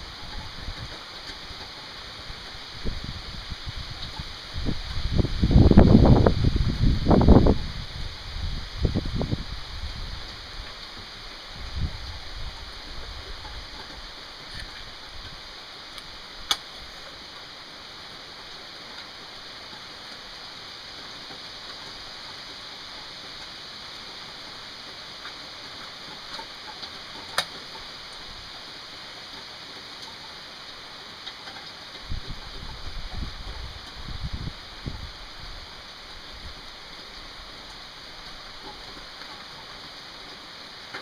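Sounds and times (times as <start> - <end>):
steady rain falling: 0.0 - 41.0
faint ticks: 24.9 - 28.3, 36.0 - 41.0.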